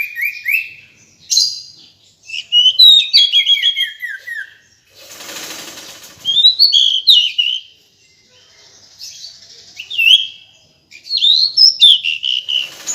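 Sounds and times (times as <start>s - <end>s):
bird whistled calls: 0.0s - 4.7s, 6.2s - 7.8s, 9.8s - 12.9s
rustling hiss: 4.9s - 6.4s.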